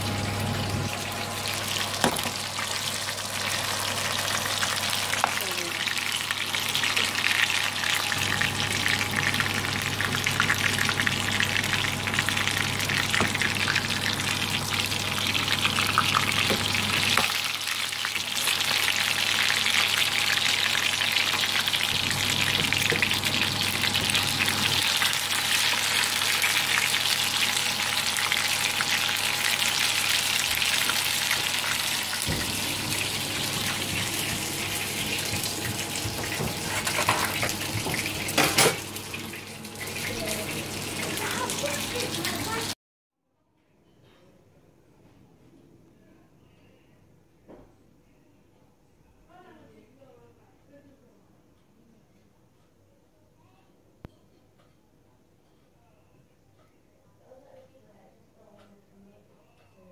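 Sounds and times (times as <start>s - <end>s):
fish sizzling in hot oil: 0.0s - 42.8s.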